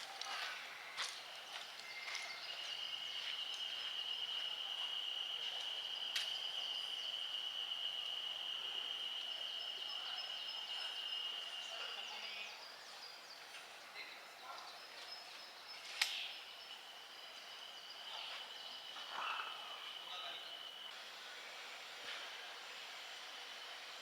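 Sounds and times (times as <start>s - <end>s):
sharp click: 15.9s - 16.2s.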